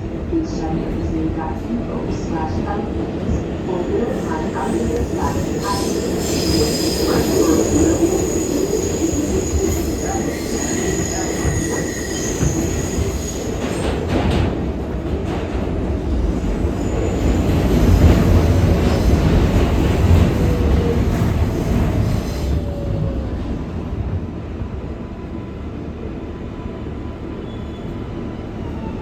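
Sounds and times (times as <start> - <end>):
train rumbling along rails: 0.0 - 29.0
train wheels squealing: 4.3 - 14.0, 20.4 - 23.1, 27.2 - 29.0.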